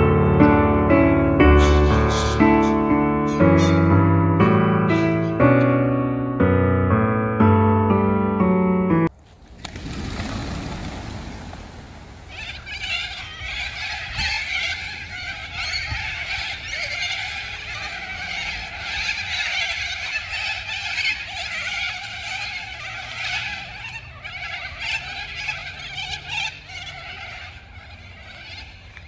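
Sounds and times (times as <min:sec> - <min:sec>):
flock of cockatoos screeching: 0:12.2 - 0:29.0.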